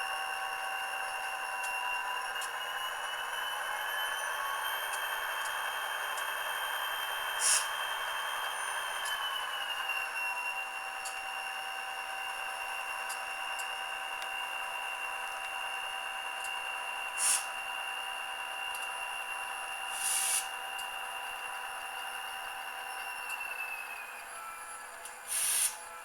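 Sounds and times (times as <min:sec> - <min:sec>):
air hiss bursts: 0:17.2 - 0:17.5, 0:20.0 - 0:20.4, 0:25.3 - 0:25.8.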